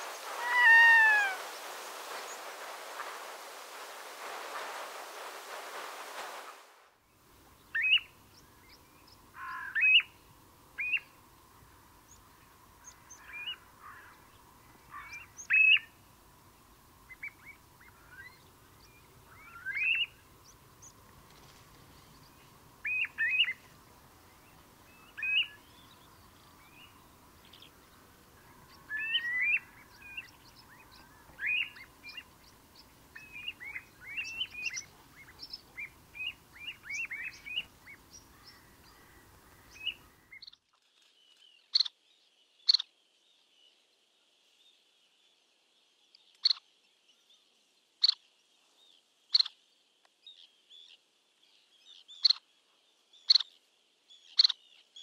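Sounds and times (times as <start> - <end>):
wild birds chirping and whistling: 0.0 - 6.6, 7.6 - 10.2, 12.8 - 16.0, 17.1 - 43.7, 51.6 - 55.0.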